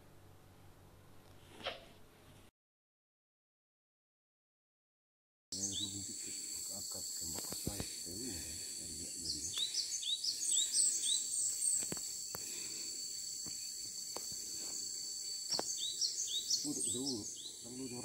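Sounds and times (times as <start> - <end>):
high insect drone: 5.6 - 18.0.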